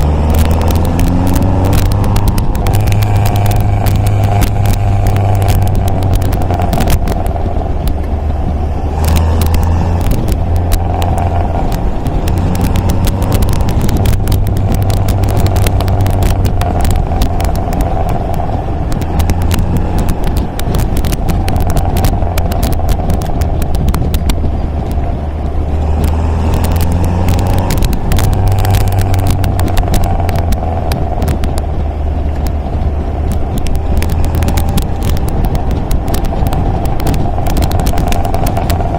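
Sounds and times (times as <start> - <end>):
car engine droning: 0.0 - 38.9
small clicks and crackles: 0.0 - 38.9.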